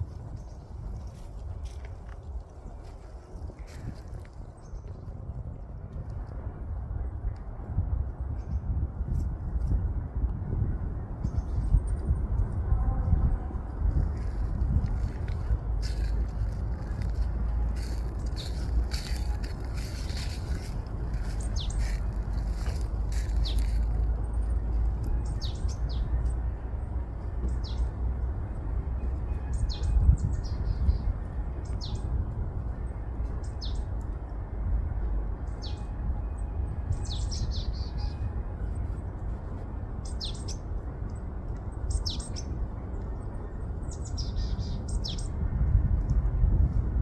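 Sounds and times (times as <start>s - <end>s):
wind buffeting microphone: 0.0s - 47.0s
small birds chirping: 15.2s - 26.4s.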